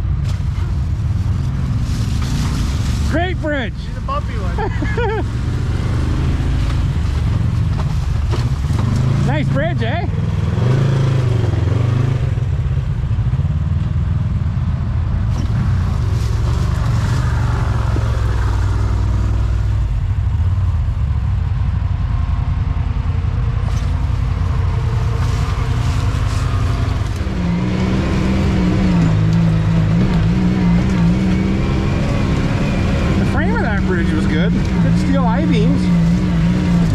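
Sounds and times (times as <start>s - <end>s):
off-road vehicle engine running: 0.0s - 36.9s.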